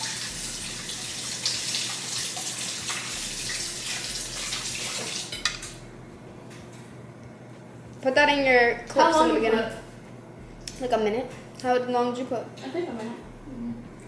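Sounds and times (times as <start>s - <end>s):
kitchen tap running into sink: 0.0s - 5.5s.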